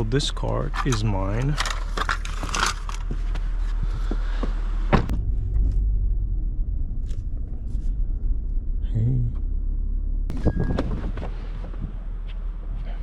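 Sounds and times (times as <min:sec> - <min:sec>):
car engine rumble: 0:00.0 - 0:13.0
car door shutting: 0:04.1 - 0:05.3.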